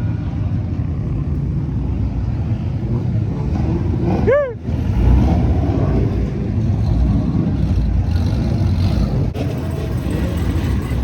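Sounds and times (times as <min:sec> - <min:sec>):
car engines rumbling: 0:00.0 - 0:11.0.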